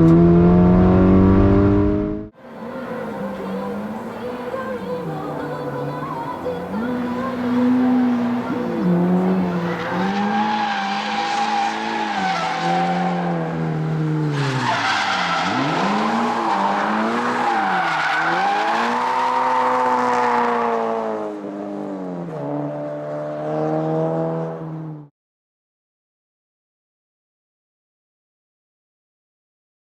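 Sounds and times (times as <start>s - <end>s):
car engine revving and idling: 0.0s - 12.0s.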